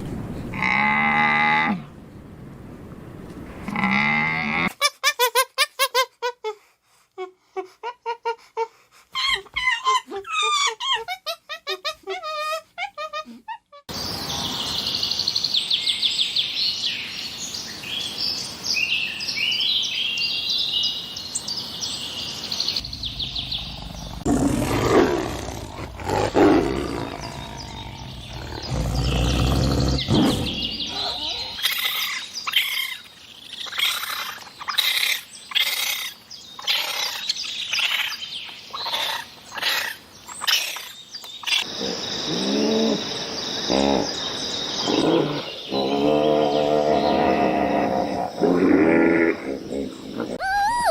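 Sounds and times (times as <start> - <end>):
deep animal roars: 22.8 - 31.1, 44.9 - 50.4
sharp animal calls: 23.6 - 41.8, 47.3 - 50.9.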